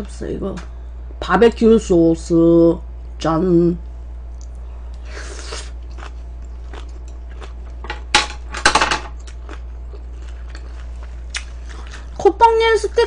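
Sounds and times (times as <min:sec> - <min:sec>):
crunching of crisp food: 0:04.3 - 0:07.9, 0:09.2 - 0:12.2.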